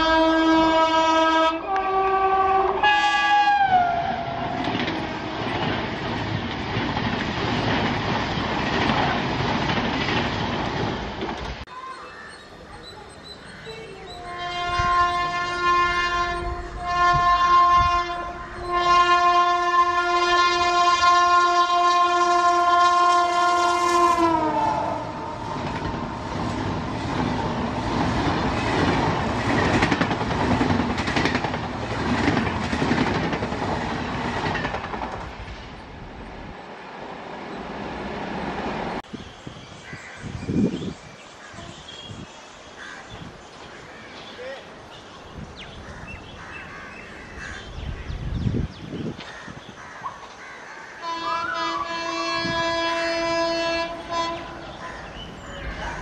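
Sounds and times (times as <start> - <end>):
locomotive horn blasts: 0.0 - 5.5, 14.2 - 26.2, 51.0 - 54.7
train coaches rumbling and clattering: 1.7 - 39.6, 51.0 - 56.0.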